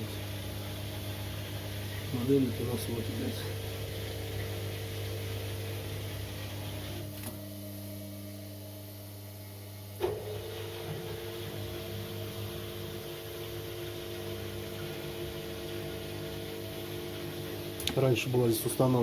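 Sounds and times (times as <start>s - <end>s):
washing machine spinning hum: 0.0s - 19.0s.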